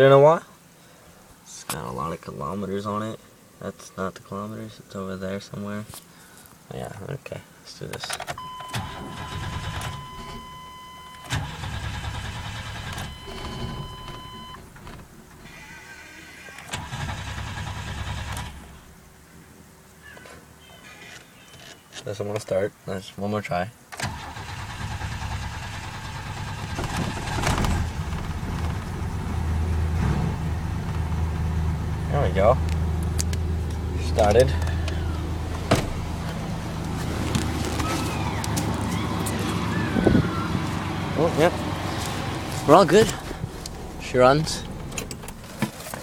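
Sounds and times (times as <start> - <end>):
truck engine cranking: 8.3 - 15.8, 16.5 - 18.9, 24.0 - 46.0
starter cranking engine: 11.3 - 14.6, 16.7 - 18.7, 24.0 - 29.2.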